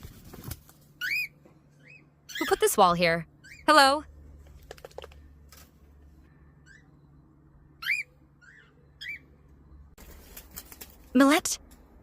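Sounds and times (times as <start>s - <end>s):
small bird chirping: 0.9s - 4.1s, 6.2s - 10.8s.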